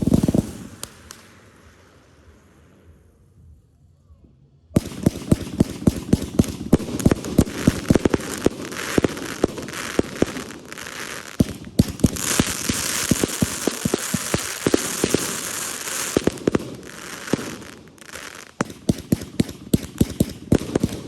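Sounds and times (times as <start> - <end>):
fireworks crackling pops: 0.0 - 2.2, 4.8 - 21.0
firework bang: 4.8 - 21.0.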